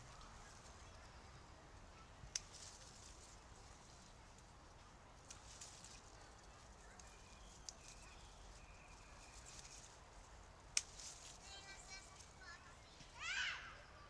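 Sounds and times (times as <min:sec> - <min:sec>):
soft clicks and crackles: 0:02.2 - 0:12.4.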